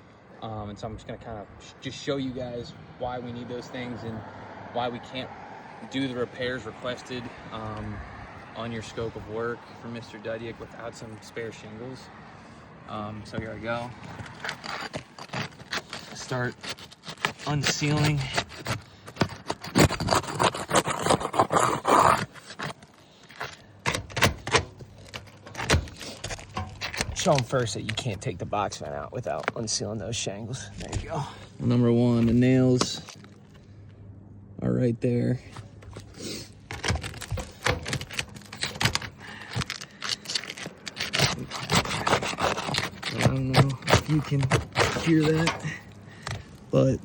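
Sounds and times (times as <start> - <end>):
roof shingles scraping and cracking: 13.2 - 29.8, 30.5 - 33.7, 35.5 - 47.0.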